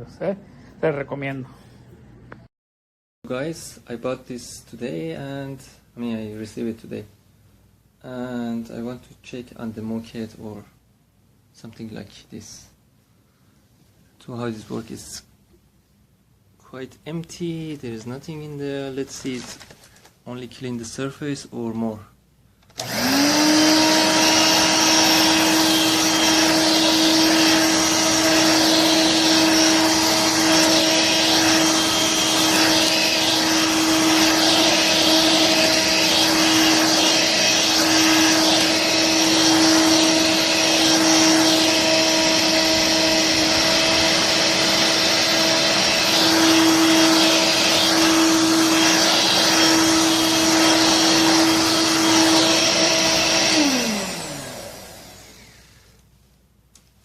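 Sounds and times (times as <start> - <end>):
stick vacuum running: 22.8 - 55.8.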